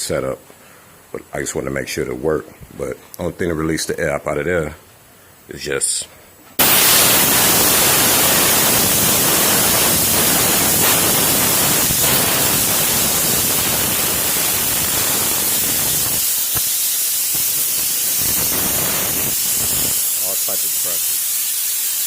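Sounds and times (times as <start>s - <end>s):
compressed air hissing: 6.6s - 22.0s.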